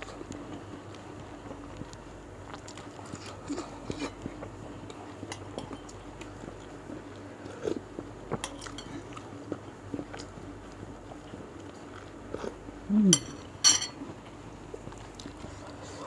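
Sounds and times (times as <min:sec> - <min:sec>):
wet chewing mouth sounds: 0:00.0 - 0:12.6
spoon clinks: 0:13.2 - 0:14.0.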